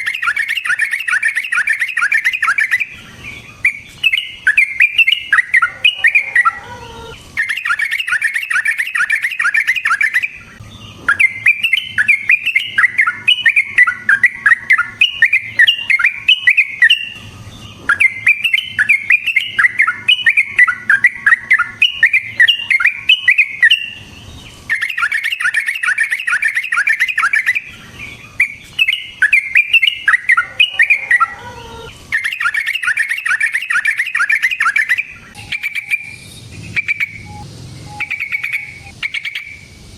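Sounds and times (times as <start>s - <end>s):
bulbul singing rapid bubbly notes: 32.2s - 39.6s.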